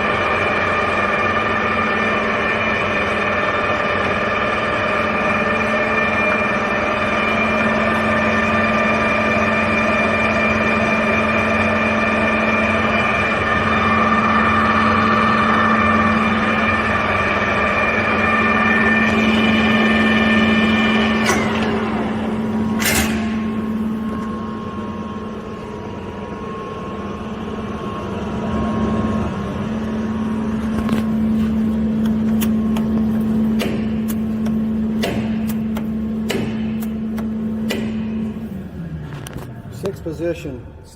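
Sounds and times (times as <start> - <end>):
lathe motor hum and whine: 0.0 - 40.9
sharp clicks from levers: 22.8 - 23.4.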